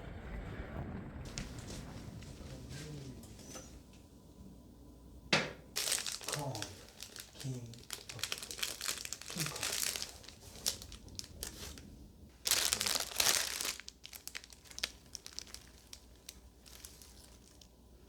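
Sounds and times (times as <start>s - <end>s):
bouquet wrapping crinkling: 1.3s - 3.8s, 5.7s - 18.0s.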